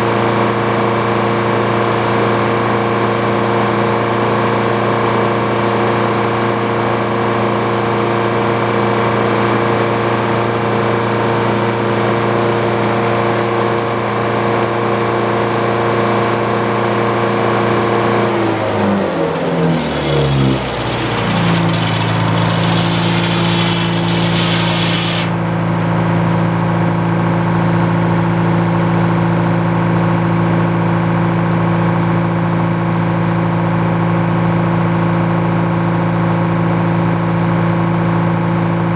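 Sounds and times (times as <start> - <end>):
sawmill engine running: 0.0 - 25.5.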